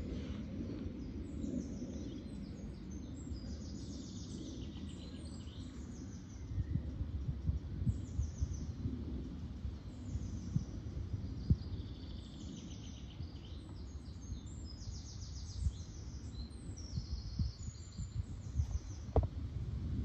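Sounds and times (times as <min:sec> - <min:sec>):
birds chirping and trilling: 0:00.0 - 0:19.3
steady low rumble: 0:00.0 - 0:20.0
soft thump: 0:19.1 - 0:19.3.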